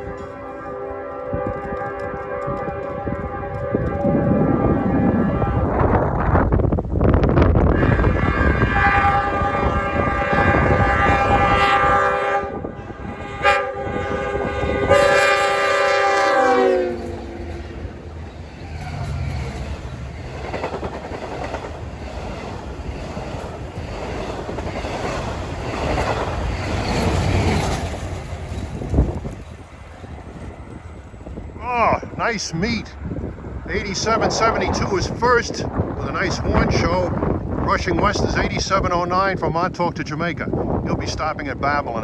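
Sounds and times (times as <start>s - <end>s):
locomotive air horn: 0.0s - 6.3s, 7.6s - 18.0s
train rumble and wheel clatter: 0.0s - 42.0s.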